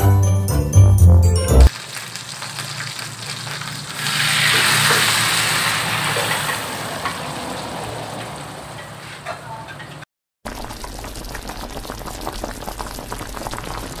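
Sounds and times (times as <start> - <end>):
liquid sizzling in a hot pan: 1.7 - 7.4, 10.5 - 14.0.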